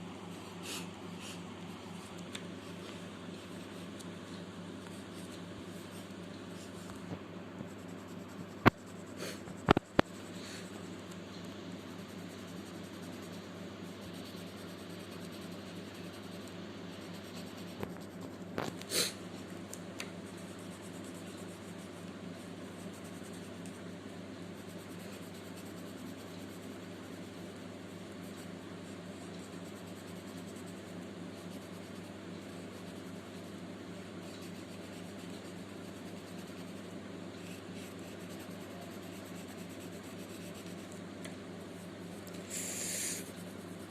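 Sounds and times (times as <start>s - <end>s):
low room hum: 0.0s - 43.9s
pencil scratching on paper: 7.6s - 11.1s, 11.8s - 19.1s, 20.2s - 23.8s, 24.5s - 41.0s, 41.8s - 43.9s.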